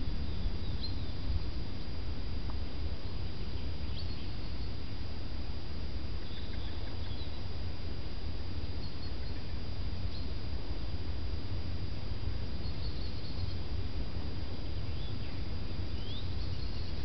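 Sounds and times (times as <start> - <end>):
faint bird chirps: 0.0 - 2.0, 3.0 - 5.0, 6.2 - 7.5, 8.8 - 10.4, 12.6 - 13.7, 14.8 - 17.0
steady low rumble: 0.0 - 17.0.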